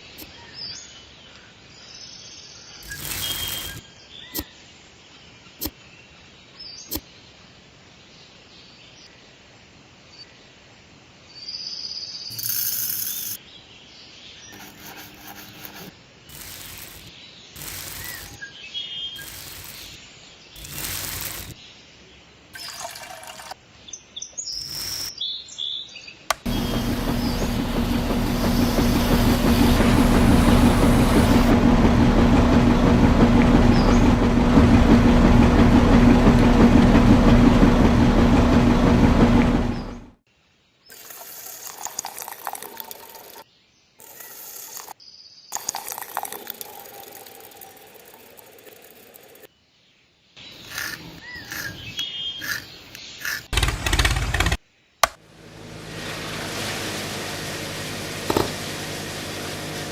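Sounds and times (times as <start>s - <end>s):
small motor humming: 2.8s - 3.8s, 14.5s - 18.5s, 19.2s - 20.0s, 20.6s - 21.6s, 24.6s - 25.1s, 26.3s - 40.1s, 44.0s - 45.0s, 50.6s - 53.6s, 55.0s - 59.9s.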